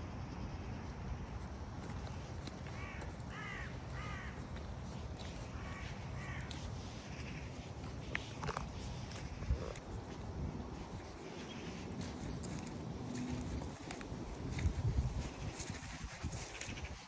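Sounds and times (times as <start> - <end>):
wind rumble on microphone: 0.0 - 17.0
crow cawing: 2.7 - 4.5, 5.4 - 6.6.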